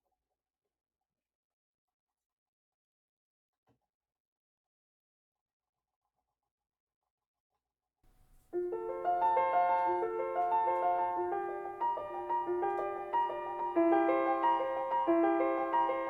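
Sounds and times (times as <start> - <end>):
slow gentle piano music: 8.5 - 16.0.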